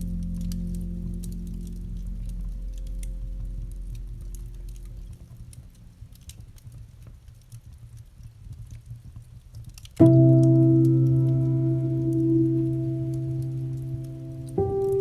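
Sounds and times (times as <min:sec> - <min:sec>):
piano chord: 0:00.0 - 0:06.0, 0:10.0 - 0:15.0
low rumble: 0:00.0 - 0:06.5, 0:10.0 - 0:15.0
campfire crackling and popping: 0:00.0 - 0:15.0.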